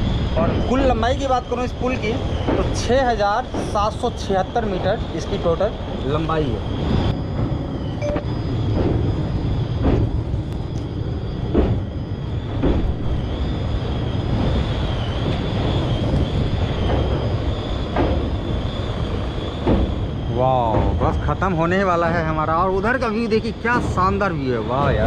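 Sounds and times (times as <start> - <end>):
rumble of wheels on rails: 0.0 - 25.0
thin high whine: 0.0 - 25.0
scattered knocks: 1.8 - 5.0, 7.3 - 10.4, 11.4 - 13.2, 14.3 - 25.0.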